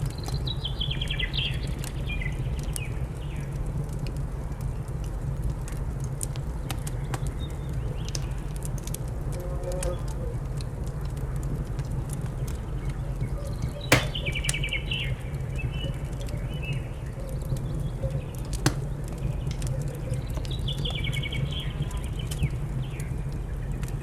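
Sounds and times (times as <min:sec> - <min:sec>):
wood fire crackling: 0:13.9 - 0:14.6, 0:18.6 - 0:19.6.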